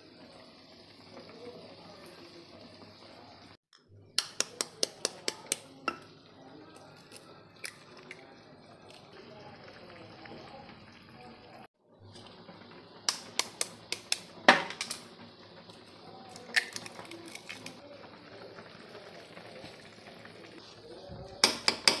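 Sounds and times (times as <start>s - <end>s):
metal utensil clicking on pan: 4.1s - 6.1s, 21.4s - 22.0s.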